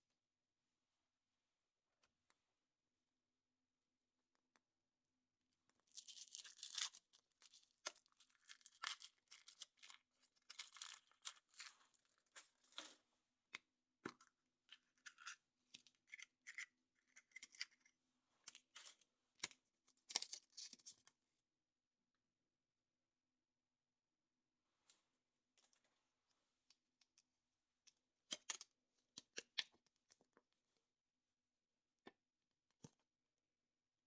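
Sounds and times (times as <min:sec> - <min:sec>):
foil wrapper crinkling and tearing: 0:05.9 - 0:11.7.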